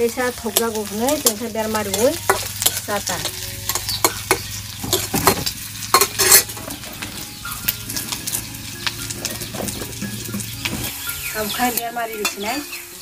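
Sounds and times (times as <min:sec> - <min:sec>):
food sizzling in a pan: 0:00.0 - 0:13.0
spatula scraping a pan: 0:01.9 - 0:11.0.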